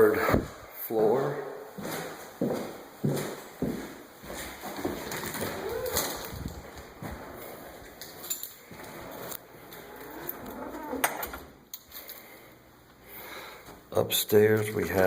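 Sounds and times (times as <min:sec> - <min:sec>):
footsteps climbing stairs: 0:01.8 - 0:08.9.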